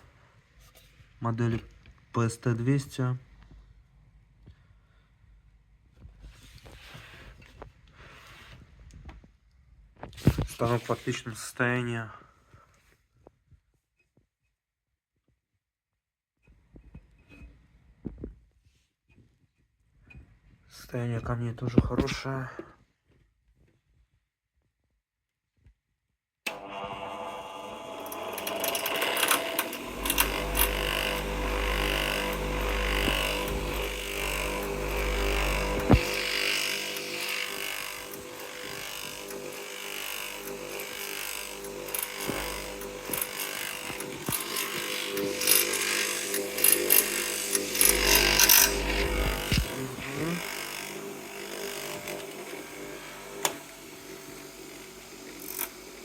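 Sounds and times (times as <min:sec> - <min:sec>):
bench grinder motor humming: 0:26.5 - 0:56.0.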